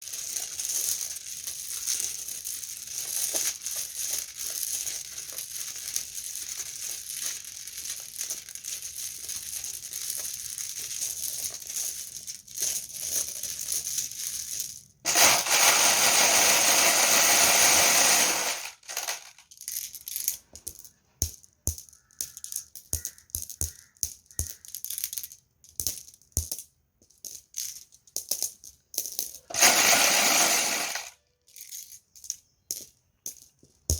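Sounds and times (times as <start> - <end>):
marbles pouring: 0.0 - 20.8, 28.3 - 31.8
marbles rattling together: 0.0 - 33.9.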